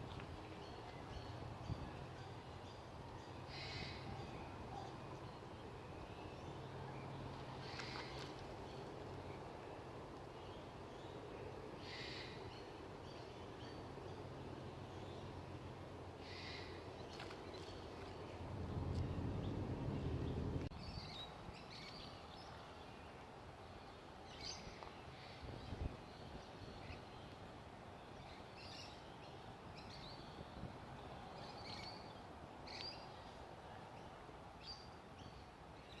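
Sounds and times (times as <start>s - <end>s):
low rumble: 18.3s - 20.7s.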